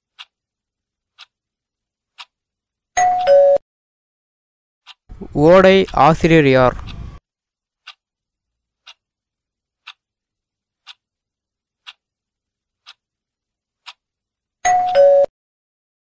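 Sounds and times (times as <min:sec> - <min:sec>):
timer ticking: 0:00.1 - 0:00.4, 0:01.1 - 0:01.4, 0:02.1 - 0:02.4, 0:04.8 - 0:07.0, 0:07.8 - 0:08.1, 0:08.8 - 0:09.2, 0:09.8 - 0:10.1, 0:10.8 - 0:11.2, 0:11.8 - 0:12.1, 0:12.8 - 0:13.1, 0:13.8 - 0:14.1.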